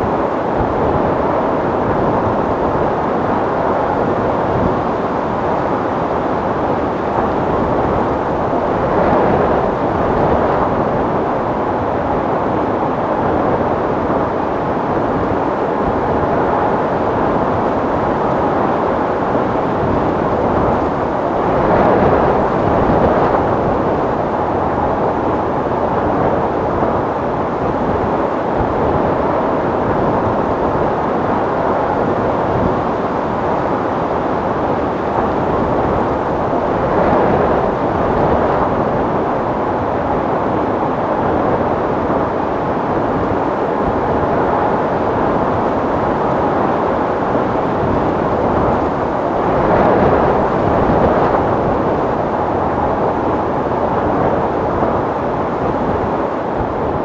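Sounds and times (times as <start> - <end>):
wind blowing: 0.0 - 57.0.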